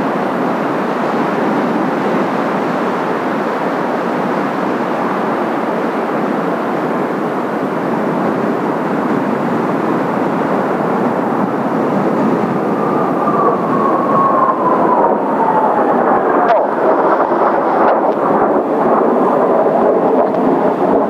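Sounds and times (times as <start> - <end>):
jet engine rush: 0.0 - 21.0
jet whine falling in pitch: 7.8 - 21.0.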